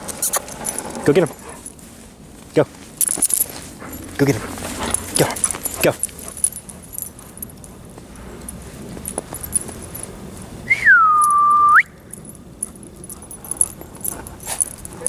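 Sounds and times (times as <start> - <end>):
dog collar tags jingling: 0.0 - 2.0, 2.7 - 10.6, 11.2 - 11.4, 12.0 - 15.0
person whistling: 10.7 - 12.0.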